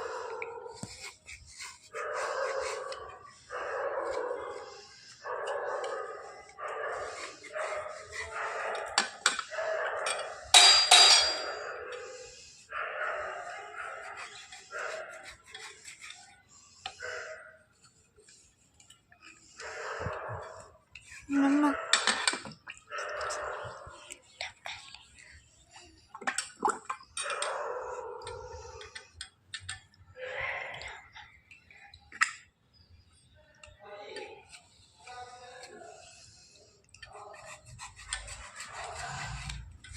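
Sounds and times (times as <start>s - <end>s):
pencil bars being scraped: 0.7s - 9.7s, 13.4s - 20.1s, 34.5s - 39.9s.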